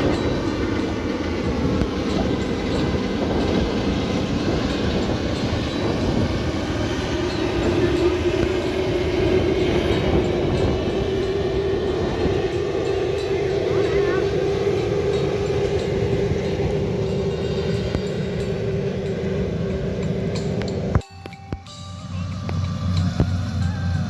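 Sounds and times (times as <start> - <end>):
combine harvester rumbling: 0.0 - 24.0
steady hum: 0.0 - 24.0.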